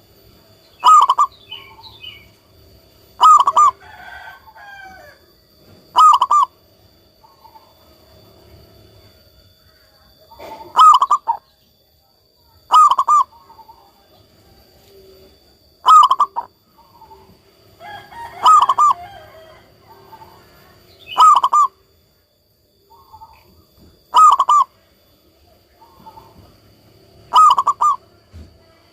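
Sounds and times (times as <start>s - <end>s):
faint steady high tone: 0.0s - 28.9s
faint bird calls: 0.6s - 28.9s
dove cooing: 0.8s - 2.3s, 3.1s - 5.0s, 5.7s - 6.6s, 10.1s - 11.5s, 12.6s - 14.1s, 14.9s - 21.9s, 22.9s - 24.9s, 25.6s - 28.9s.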